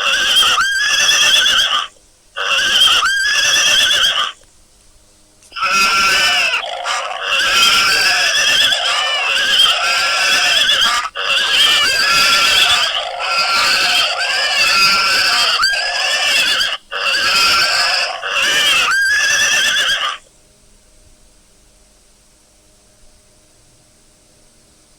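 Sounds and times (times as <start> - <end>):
high-pitched animal cries: 0.0 - 4.4, 5.6 - 20.2.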